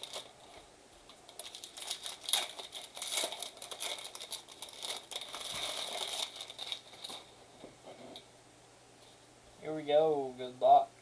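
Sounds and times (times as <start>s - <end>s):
card pack wrappers crinkling and tearing: 0.0s - 7.4s.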